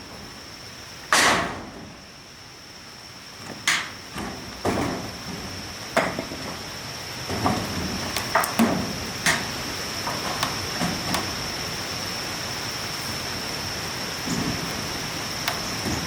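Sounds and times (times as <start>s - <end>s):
hard knocks and clatters: 3.4s - 6.6s.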